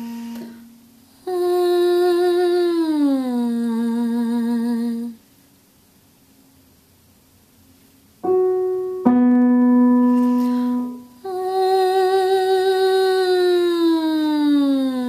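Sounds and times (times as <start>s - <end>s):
piano notes: 0.0s - 0.9s, 8.2s - 12.2s
woman humming with vibrato: 0.0s - 5.2s, 9.8s - 15.0s.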